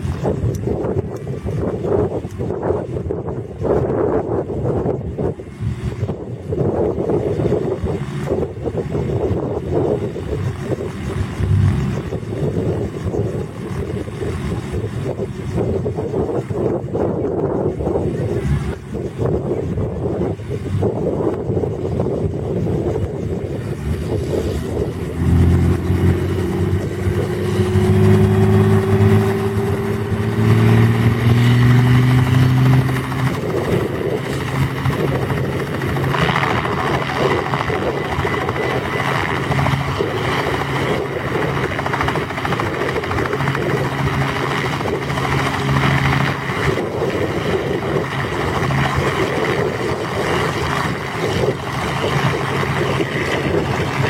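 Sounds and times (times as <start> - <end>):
constant rushing noise: 0.0 - 54.0
engine humming: 0.0 - 54.0.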